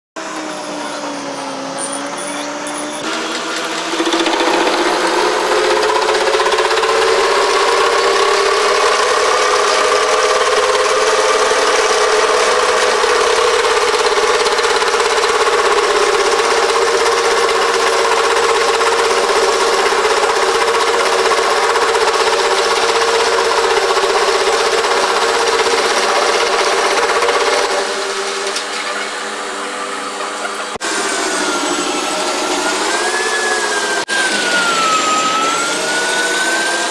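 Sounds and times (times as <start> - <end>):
machine motor humming: 0.2 - 36.9.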